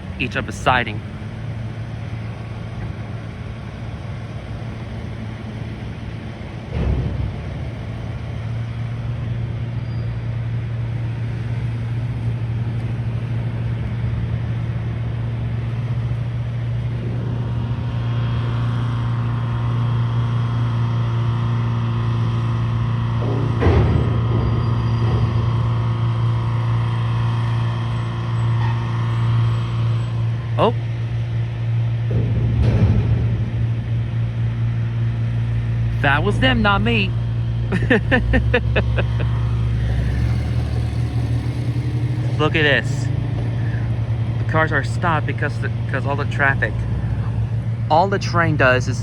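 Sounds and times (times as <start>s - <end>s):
engine humming: 0.0s - 49.0s
thump: 6.7s - 7.7s, 23.2s - 25.5s, 32.1s - 33.8s.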